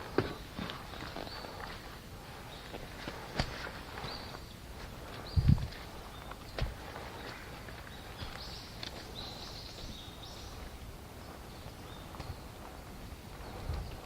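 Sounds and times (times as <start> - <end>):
wind buffeting microphone: 5.0 - 14.0.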